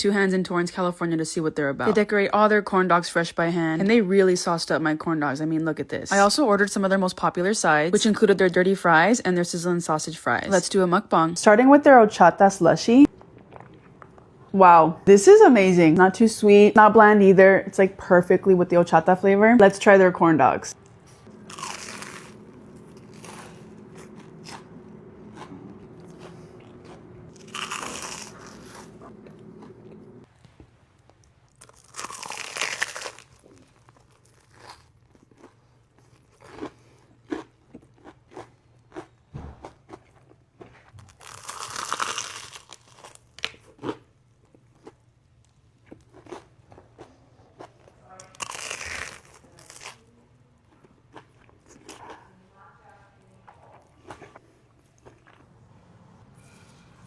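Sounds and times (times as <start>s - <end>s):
loud crunching bites: 21.3s - 24.7s, 25.3s - 29.7s, 31.6s - 35.5s, 41.2s - 44.0s.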